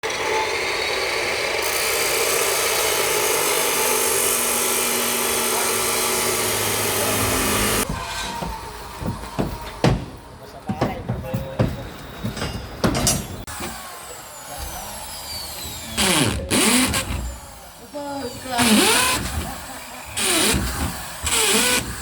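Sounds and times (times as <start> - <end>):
power tool running: 0.0 - 9.8, 13.4 - 22.0
sharp knocks: 7.8 - 13.8.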